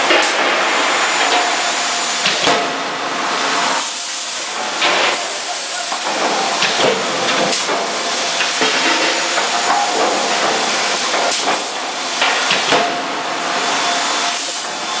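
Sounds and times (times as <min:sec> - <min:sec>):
loud steady hiss: 0:00.0 - 0:15.0
forging hammer blows: 0:04.5 - 0:14.7.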